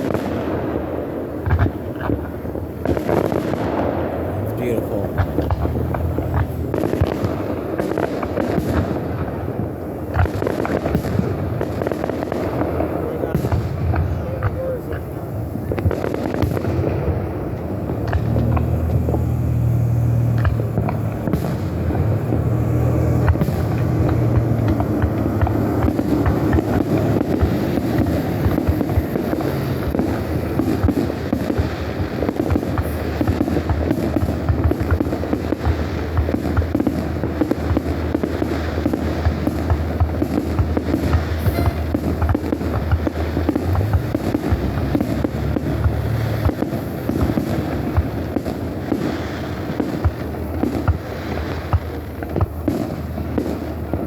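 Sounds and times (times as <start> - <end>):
aerial fireworks popping and crackling: 0.0 - 54.0
firework boom: 2.8 - 54.0
low rumble: 4.2 - 7.7, 16.8 - 30.8.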